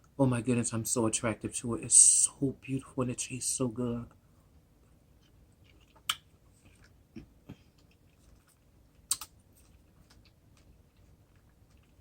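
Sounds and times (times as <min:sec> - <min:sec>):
mouth clicks while eating: 0:05.7 - 0:10.7.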